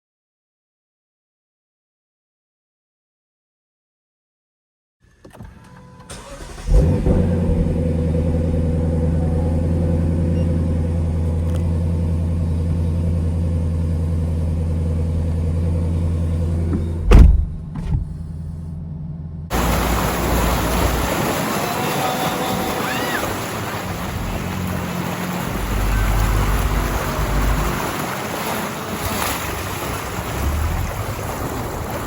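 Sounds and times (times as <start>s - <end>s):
car engine droning: 5.4s - 32.0s
loud thump: 16.7s - 18.2s
busy outdoor noise: 19.5s - 32.0s.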